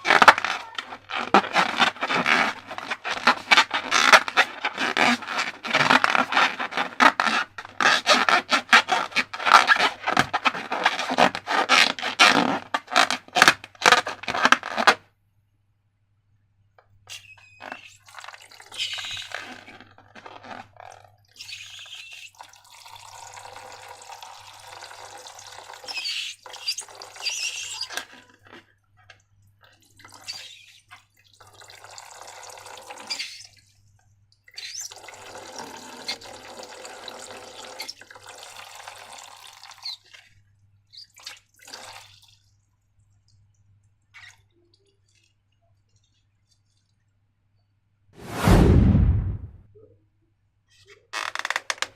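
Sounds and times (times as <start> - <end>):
slime squelching and dripping: 25.8 - 35.1, 39.4 - 47.2.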